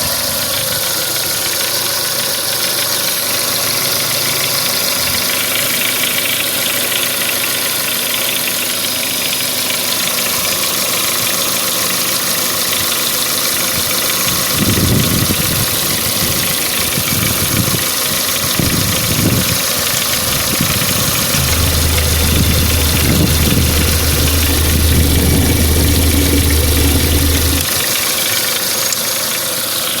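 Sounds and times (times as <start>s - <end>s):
car engine running with knock: 21.0s - 27.8s
deep low hum: 21.3s - 27.8s.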